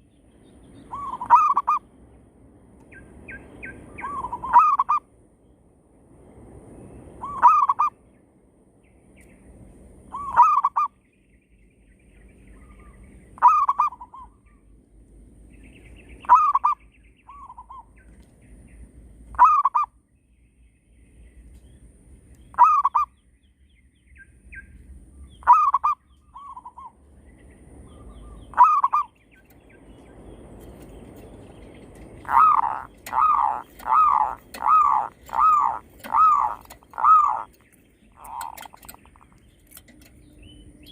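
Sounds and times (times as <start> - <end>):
doves cooing: 0.9 - 1.8, 10.1 - 10.9, 13.4 - 14.3, 28.2 - 29.2, 30.6 - 40.2.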